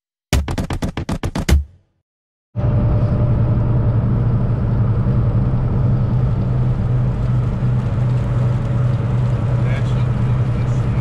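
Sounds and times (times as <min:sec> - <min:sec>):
road noise: 0:02.6 - 0:11.0
truck engine drone: 0:02.6 - 0:11.0.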